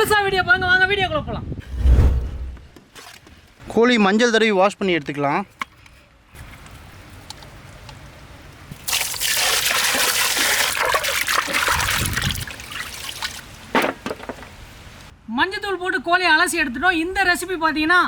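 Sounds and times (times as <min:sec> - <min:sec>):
water splashing over chicken: 0:08.7 - 0:13.7.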